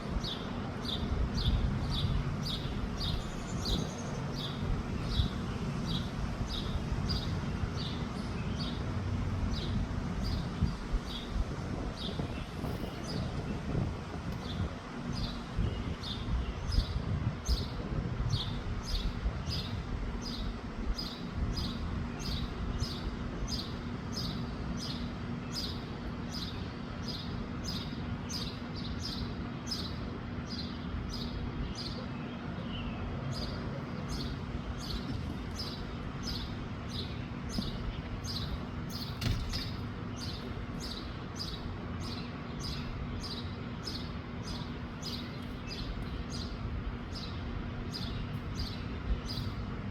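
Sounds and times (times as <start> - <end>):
low wind rumble: 0.0 - 49.9
bird chirping: 18.4 - 49.6.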